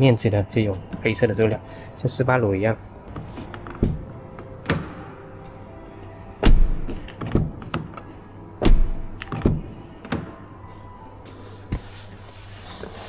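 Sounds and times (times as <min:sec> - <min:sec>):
car door thunks: 0:06.4 - 0:07.9, 0:08.6 - 0:09.7.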